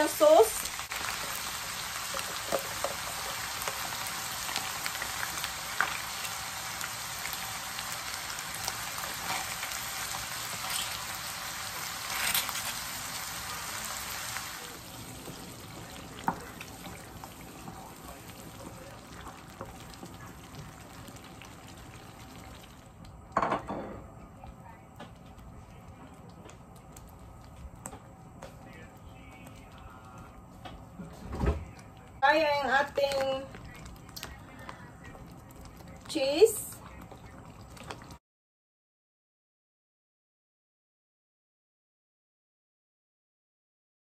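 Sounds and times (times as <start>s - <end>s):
food sizzling in a frying pan: 0.0s - 23.6s.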